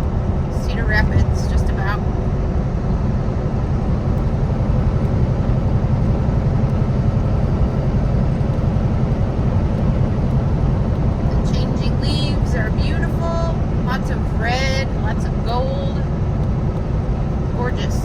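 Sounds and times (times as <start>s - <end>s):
road noise: 0.0s - 18.0s
truck engine drone: 0.0s - 18.0s.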